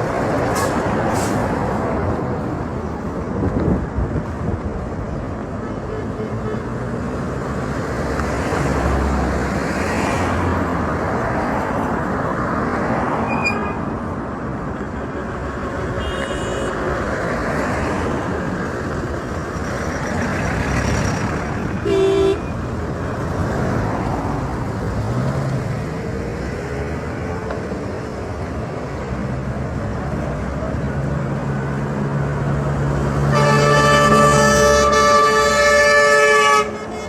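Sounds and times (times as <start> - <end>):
rumble of passing vehicles: 0.0 - 37.0
vehicle horn toot: 16.0 - 16.8, 21.8 - 22.5, 33.3 - 37.0.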